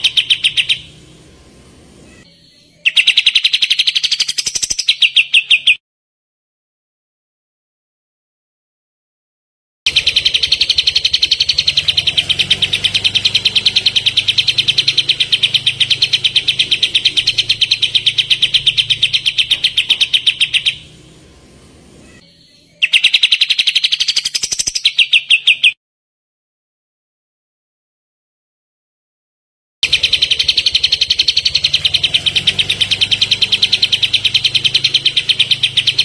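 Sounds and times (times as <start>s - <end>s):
songbird rapid high song: 0.0s - 5.8s, 9.9s - 25.8s, 29.8s - 36.0s.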